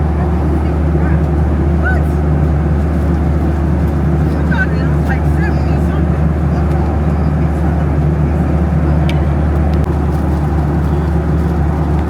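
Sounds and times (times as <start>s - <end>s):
airplane cabin engine drone: 0.0s - 12.0s.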